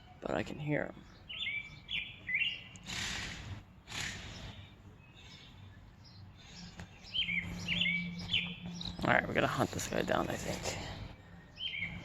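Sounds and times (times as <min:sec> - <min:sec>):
young bird chirping: 0:01.0 - 0:03.0, 0:04.2 - 0:10.2.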